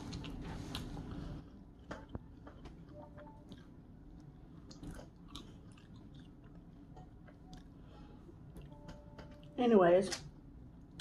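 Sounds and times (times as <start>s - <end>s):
chewing crunchy fries: 0.0s - 7.8s.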